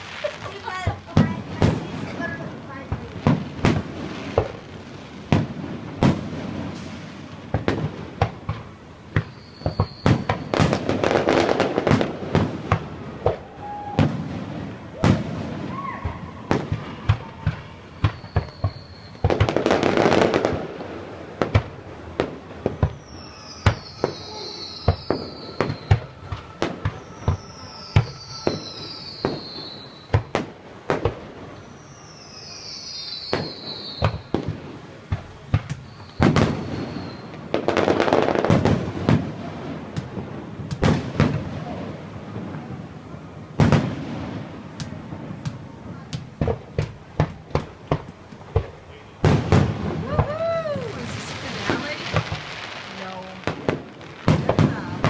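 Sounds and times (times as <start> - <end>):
fireworks booming: 0.0 - 55.0
falling firework whistles: 5.3 - 20.6, 21.4 - 34.7, 35.5 - 42.0, 46.2 - 55.0.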